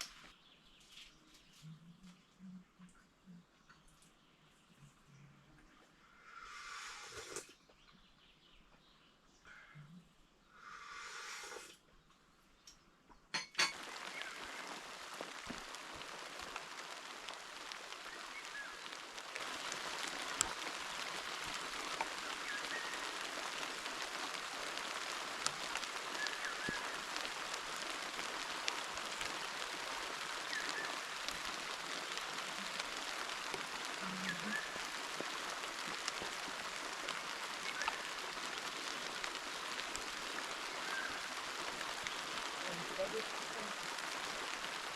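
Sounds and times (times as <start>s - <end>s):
heavy rain hissing: 6.2s - 7.5s, 10.6s - 11.8s, 13.7s - 44.9s.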